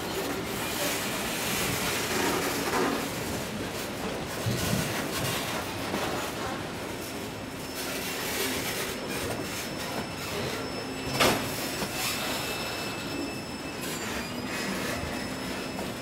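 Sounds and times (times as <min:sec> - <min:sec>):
high-pitched wheel squeal: 0:07.6 - 0:16.0.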